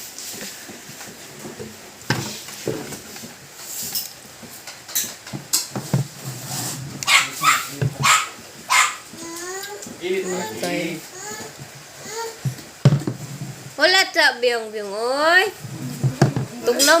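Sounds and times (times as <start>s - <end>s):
knocks and clatters: 1.0s - 6.2s, 12.4s - 13.8s
dog barking: 7.0s - 9.1s.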